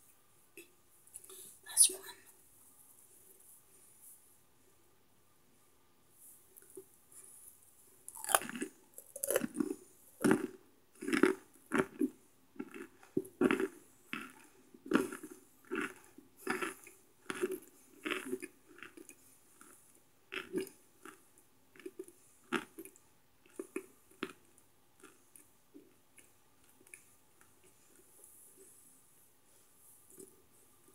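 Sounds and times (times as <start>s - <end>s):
person chewing crisp chunks: 8.0s - 28.9s.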